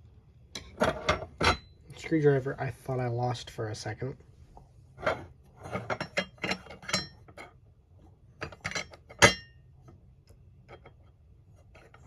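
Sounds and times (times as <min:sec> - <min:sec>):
screws clinking on metal: 0:05.8 - 0:07.5.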